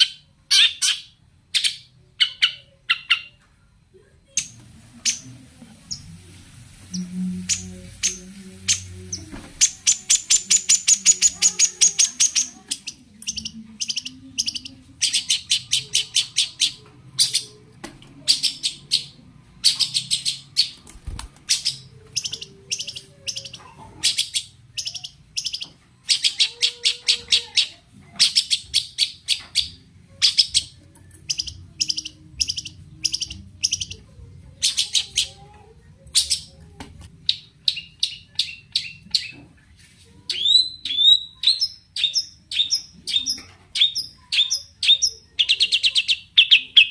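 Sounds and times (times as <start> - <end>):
bird harsh chattering song: 9.6 - 17.5, 18.3 - 20.8.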